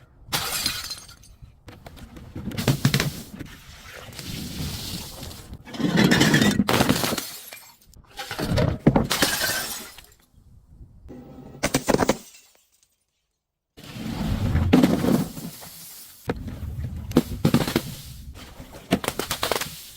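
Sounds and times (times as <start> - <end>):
glass bottles shattering: 0.3 - 1.4, 6.0 - 7.9, 9.1 - 10.2, 11.7 - 13.2.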